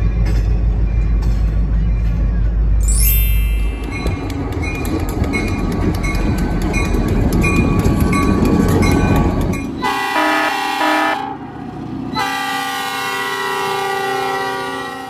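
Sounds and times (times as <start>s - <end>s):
train rumbling: 0.0s - 15.0s
wheel clicks over rail joints: 3.8s - 9.8s
locomotive horn: 9.8s - 11.4s, 12.1s - 15.0s.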